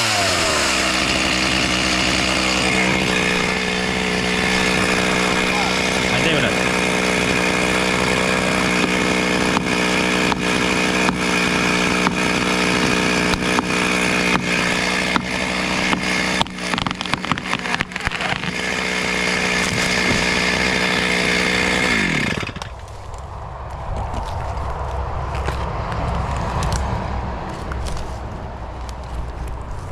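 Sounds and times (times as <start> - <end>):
chainsaw running at high revs: 0.0 - 22.8.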